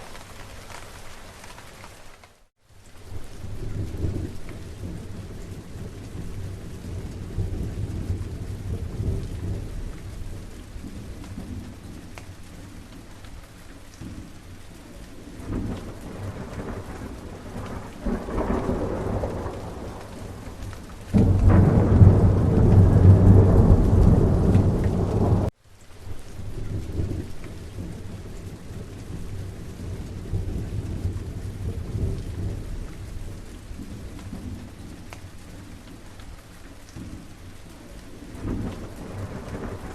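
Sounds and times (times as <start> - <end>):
steady rain: 0.0 - 39.9
rolling thunder: 3.4 - 12.1, 15.4 - 25.5, 38.3 - 39.9.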